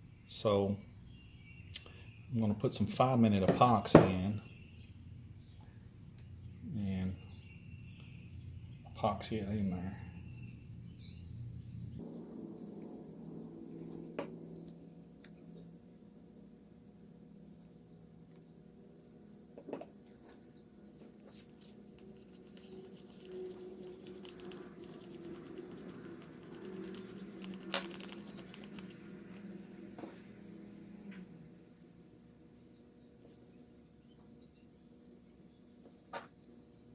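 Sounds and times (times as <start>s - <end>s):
faint bird chirping: 0.0s - 36.9s
steady low hum: 0.0s - 36.9s
small objects clicking and tapping: 27.4s - 29.0s.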